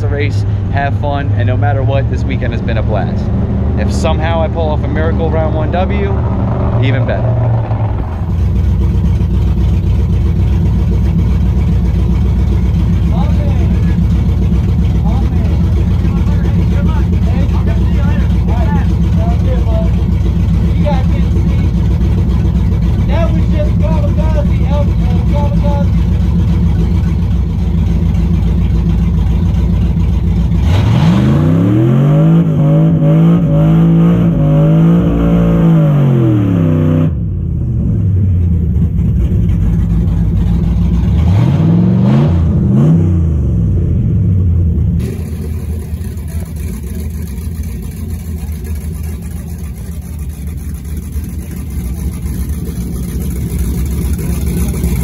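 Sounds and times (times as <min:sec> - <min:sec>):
drag-race engine revving: 0:00.0 - 0:55.0
steady engine rumble: 0:00.0 - 0:55.0.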